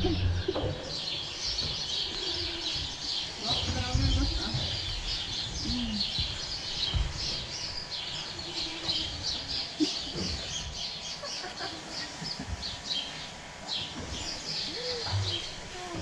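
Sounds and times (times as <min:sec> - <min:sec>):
small birds chirping: 0:00.0 - 0:16.0
low thumps: 0:02.8 - 0:07.9.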